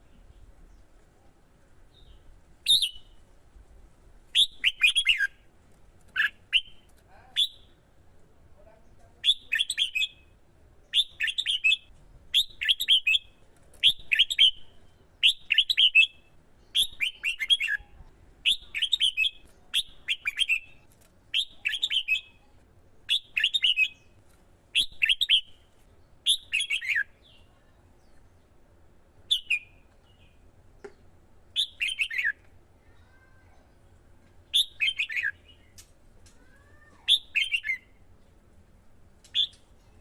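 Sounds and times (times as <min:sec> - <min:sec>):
bulbul singing warbled phrases: 0:01.9 - 0:03.2, 0:04.3 - 0:05.4, 0:08.7 - 0:24.2, 0:24.8 - 0:28.4, 0:29.2 - 0:30.4, 0:31.6 - 0:32.4, 0:34.5 - 0:35.8, 0:37.1 - 0:38.0.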